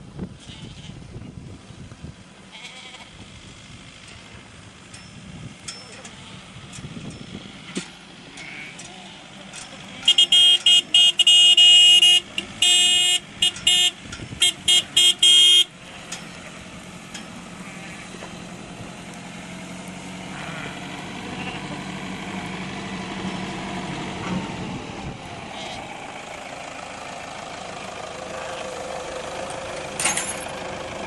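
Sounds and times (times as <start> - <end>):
vehicle engine running: 0.0 - 31.0
vehicle horn blasts: 10.0 - 15.7.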